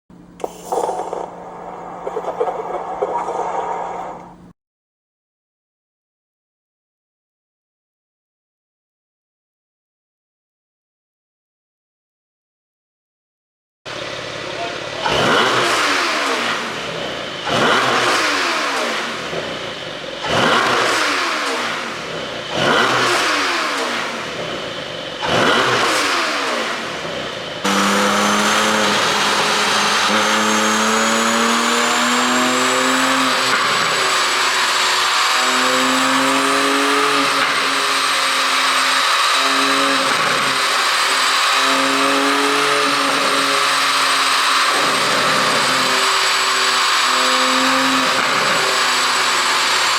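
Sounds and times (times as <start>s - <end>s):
steady engine drone: 0.1s - 4.5s, 13.9s - 49.9s
car engine revving in blips: 14.8s - 49.9s.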